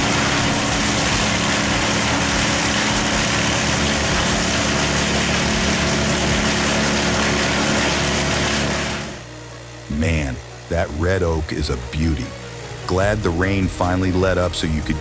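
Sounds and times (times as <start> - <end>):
wood chipper running: 0.0 - 15.0.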